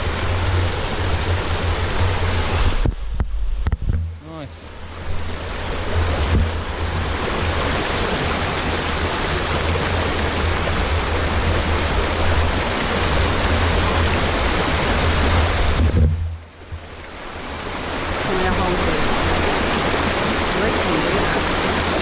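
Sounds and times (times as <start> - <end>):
creek water rushing: 0.0 - 3.6, 4.2 - 22.0
low rumble: 0.0 - 7.2.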